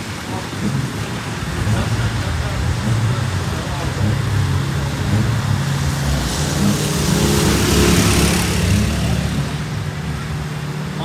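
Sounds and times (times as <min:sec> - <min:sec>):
racing car engine running: 0:00.0 - 0:11.0
tyres hissing on wet track: 0:00.0 - 0:11.0.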